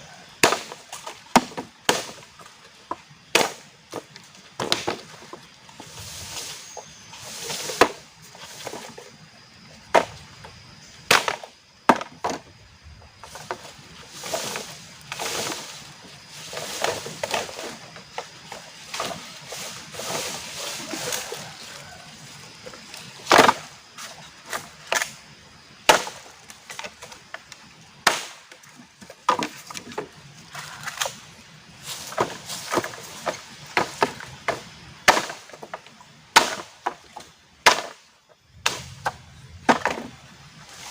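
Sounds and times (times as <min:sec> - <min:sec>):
branches and leaves rustling: 0:00.0 - 0:40.9
wood chopping and cracking: 0:00.4 - 0:05.4, 0:09.9 - 0:10.2, 0:11.0 - 0:12.4, 0:23.2 - 0:23.8, 0:25.8 - 0:31.2, 0:32.1 - 0:40.2.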